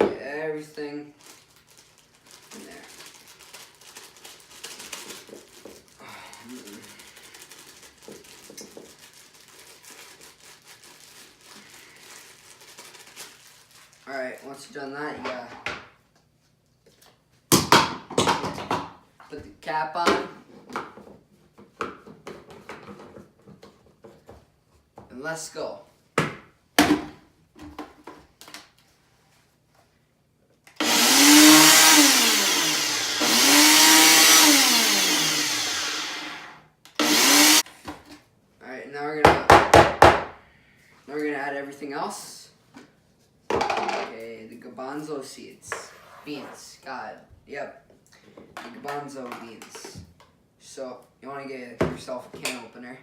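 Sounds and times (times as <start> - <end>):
rustling and crinkling: 1.1 - 6.0, 6.6 - 14.1
electric blender running: 30.8 - 37.6.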